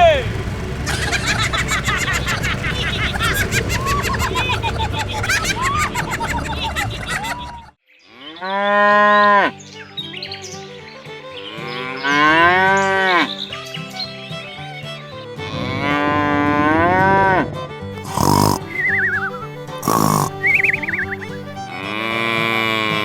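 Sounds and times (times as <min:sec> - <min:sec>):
cow mooing: 0:08.1 - 0:09.5, 0:11.6 - 0:13.4, 0:15.4 - 0:17.4, 0:18.1 - 0:23.0
light background music: 0:09.6 - 0:23.0.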